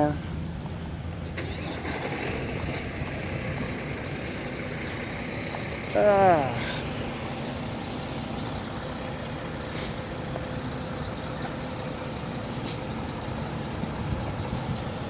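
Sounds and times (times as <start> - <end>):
trucks idling: 0.0 - 15.0
short high hiss: 9.7 - 10.0, 12.6 - 12.9.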